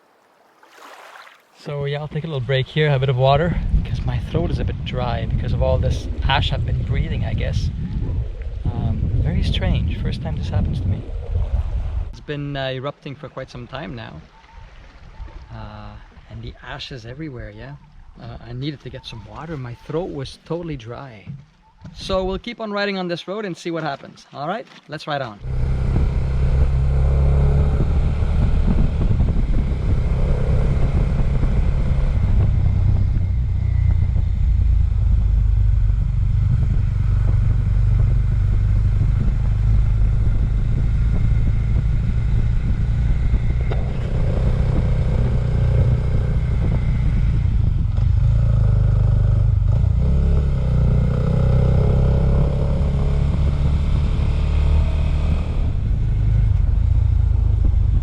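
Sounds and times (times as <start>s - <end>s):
motorcycle engine running: 25.5s - 58.0s.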